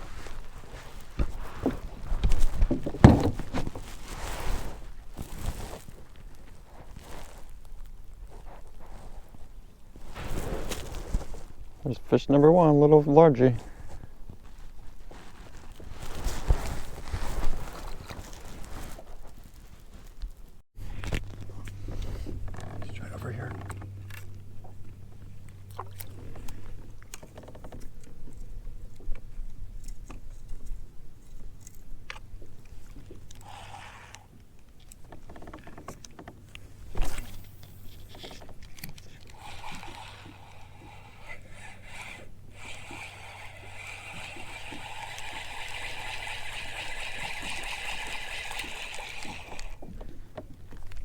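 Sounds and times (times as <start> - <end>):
knocks and scrapes on kayak hull: 0.0 - 6.0.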